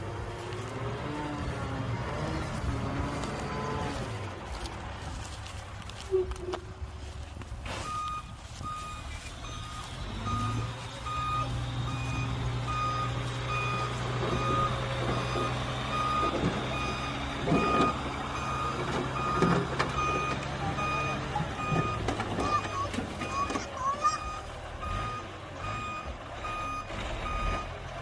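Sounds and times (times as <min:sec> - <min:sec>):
diesel engine: 0:00.0 - 0:28.0
reversing alarm beeping: 0:07.8 - 0:27.8.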